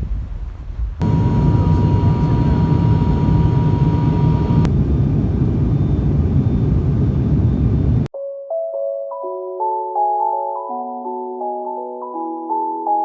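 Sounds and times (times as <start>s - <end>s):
vehicle engine rumbling: 0.9s - 8.1s
thin steady whine: 1.0s - 8.1s.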